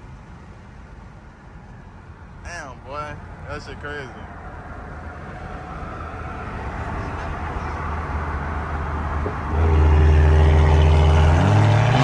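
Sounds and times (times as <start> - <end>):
car engine pulling hard: 6.4 - 12.0.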